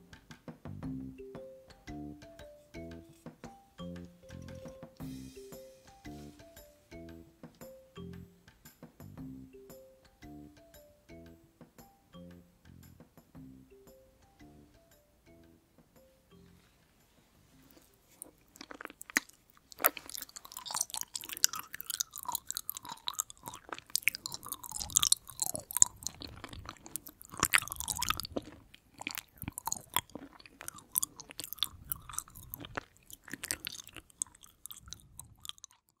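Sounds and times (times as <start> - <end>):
wet chewing of jelly: 17.7 - 36.0.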